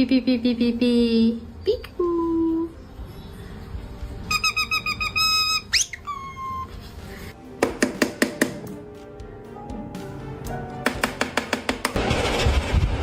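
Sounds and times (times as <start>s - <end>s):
parrot mimicking beeps: 4.3s - 6.7s
parrot whistling: 4.3s - 6.7s.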